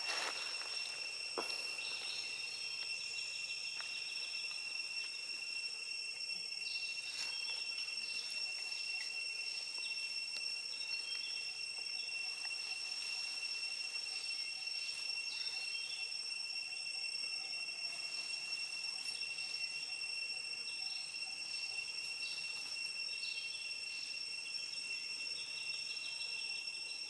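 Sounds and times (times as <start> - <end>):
insects trilling: 0.0 - 27.0.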